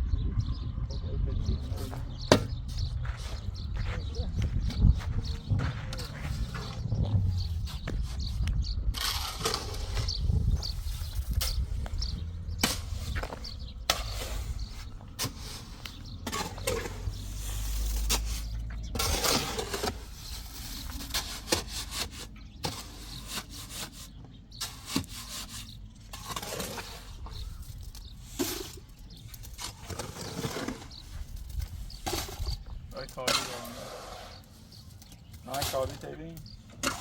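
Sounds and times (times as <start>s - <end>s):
low rumble: 0.0s - 21.1s
scraping and knocking: 1.7s - 37.0s.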